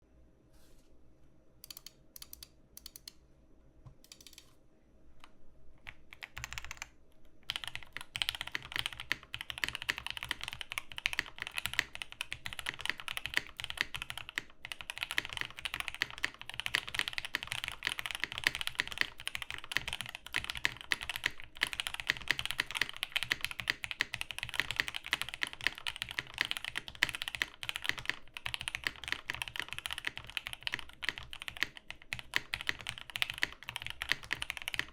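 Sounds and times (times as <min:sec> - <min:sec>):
mechanical keyboard typing: 0:01.6 - 0:03.2, 0:04.0 - 0:04.6, 0:05.8 - 0:34.9.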